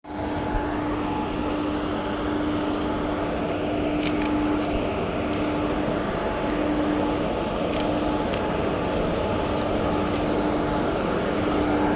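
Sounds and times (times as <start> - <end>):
constant hum: 0.0 - 11.9.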